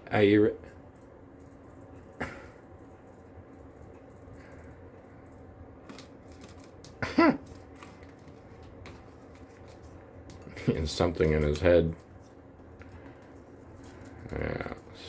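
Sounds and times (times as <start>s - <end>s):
parrot clicks and scratching: 2.8s - 14.7s.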